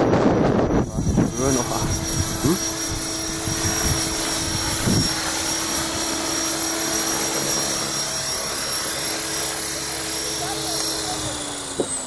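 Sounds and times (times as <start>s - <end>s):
wind rumble on microphone: 0.0s - 5.4s
rc helicopter rotor and motor whine: 0.0s - 12.0s.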